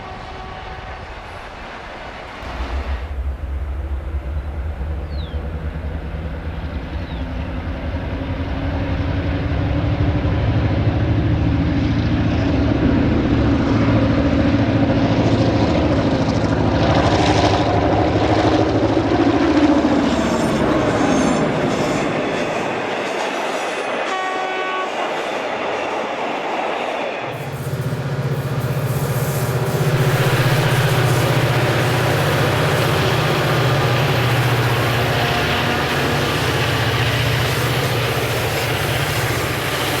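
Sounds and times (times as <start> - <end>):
train horn blast: 0.0 - 1.4, 24.0 - 25.1, 27.3 - 40.0
diesel locomotive engine throb: 0.0 - 23.2, 27.2 - 40.0
train wheels clicking over rail joints: 27.3 - 40.0.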